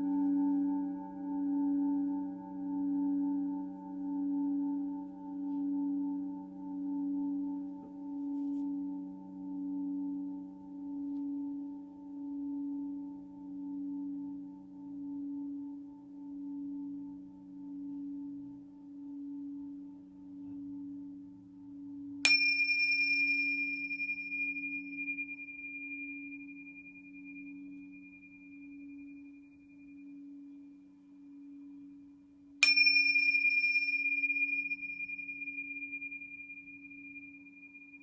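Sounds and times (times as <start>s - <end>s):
low singing bowl humming: 0.0s - 38.0s
high bell tone struck: 22.3s - 29.4s, 32.6s - 38.0s.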